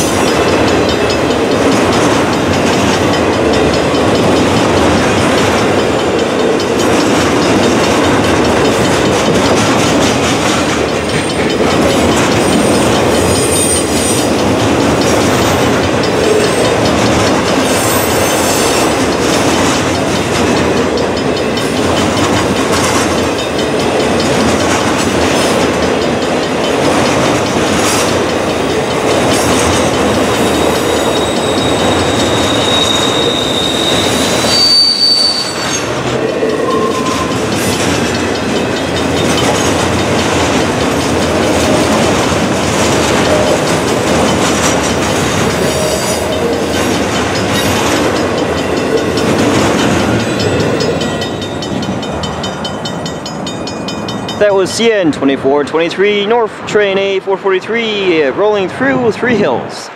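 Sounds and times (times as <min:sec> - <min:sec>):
freight train wheels clattering: 0:00.0 - 0:59.6
high wheel squeals: 0:12.4 - 0:14.3, 0:17.6 - 0:19.0, 0:30.2 - 0:39.5.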